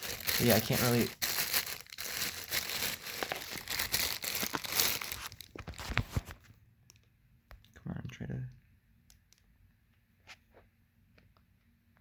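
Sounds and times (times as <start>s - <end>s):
packaging crinkling: 0.0s - 6.4s.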